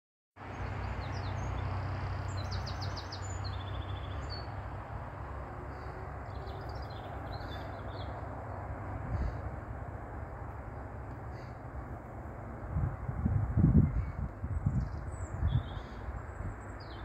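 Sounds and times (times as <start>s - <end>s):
small birds chirping: 0.5s - 4.6s, 5.7s - 9.5s, 13.8s - 17.0s.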